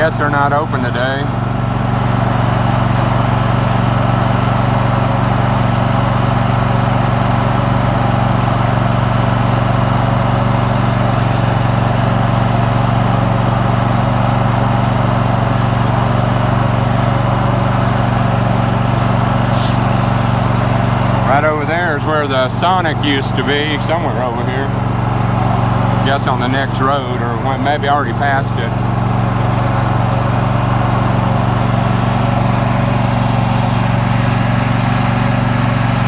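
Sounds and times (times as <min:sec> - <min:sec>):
lawn mower engine running: 0:00.0 - 0:36.0.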